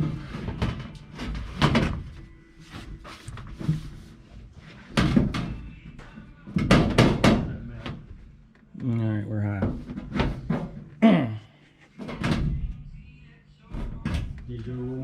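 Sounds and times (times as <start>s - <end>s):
metal tube knocking and clunking: 4.8s - 8.1s.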